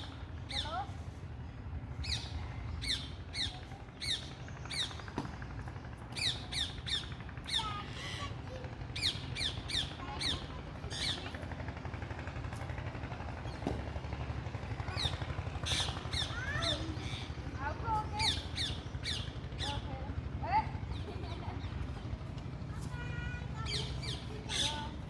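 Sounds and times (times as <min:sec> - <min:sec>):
low background hum: 0:00.0 - 0:25.0
parrots squawking: 0:06.2 - 0:11.3.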